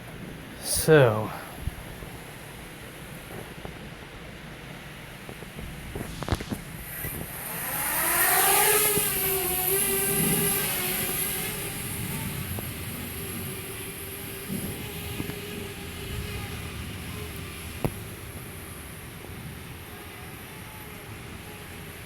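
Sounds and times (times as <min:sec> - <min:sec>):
quadcopter motors whining: 0:06.0 - 0:17.5.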